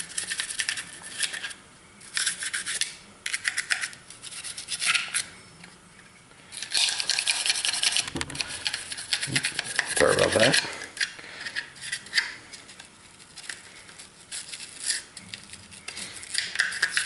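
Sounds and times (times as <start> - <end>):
brush scrubbing plastic: 6.8 - 10.8.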